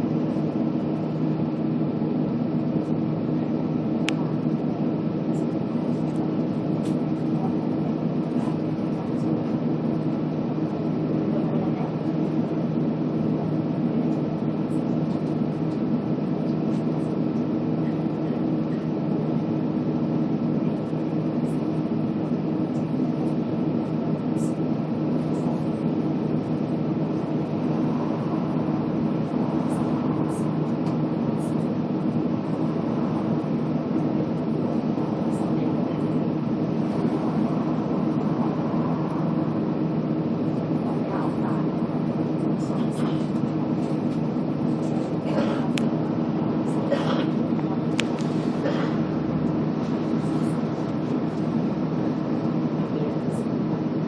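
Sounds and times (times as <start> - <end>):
bus diesel engine humming: 0.0 - 54.0
road noise: 26.5 - 54.0.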